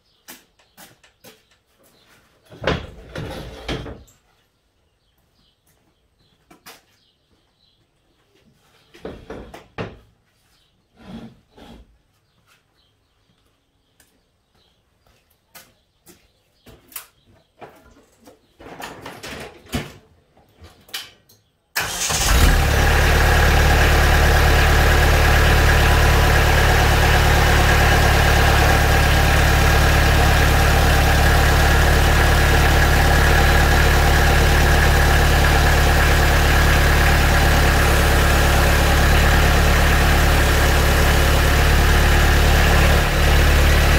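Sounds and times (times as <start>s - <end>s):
tractor diesel engine idling: 21.8s - 43.9s.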